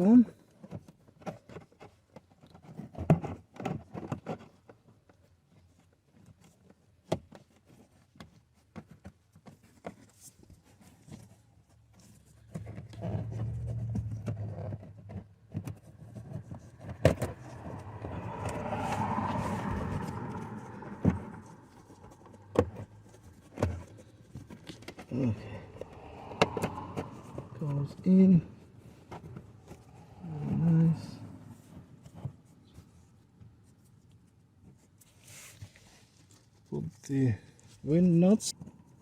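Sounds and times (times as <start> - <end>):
vehicle low hum: 12.2 - 24.4, 25.0 - 32.6.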